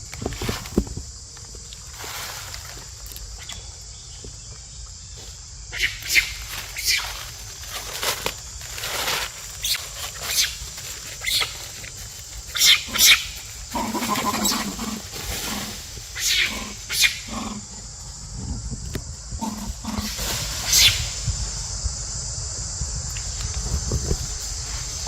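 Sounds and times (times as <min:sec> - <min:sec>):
macaque squealing: 0:05.7 - 0:07.1, 0:11.2 - 0:11.6, 0:12.5 - 0:15.6, 0:16.2 - 0:17.5.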